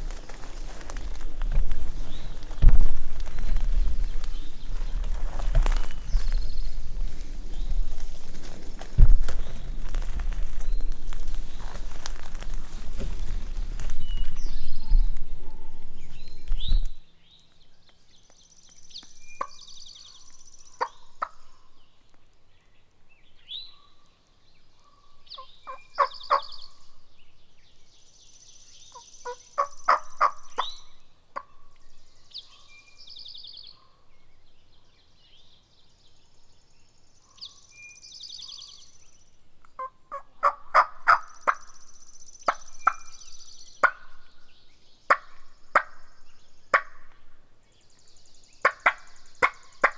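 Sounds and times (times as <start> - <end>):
songbirds singing trilled phrases: 0.0 - 49.9
turkey gobbling: 20.8 - 21.6, 25.4 - 26.6, 28.9 - 30.8, 39.8 - 41.6, 43.8 - 44.2, 45.1 - 46.0, 46.7 - 47.1, 48.6 - 49.9.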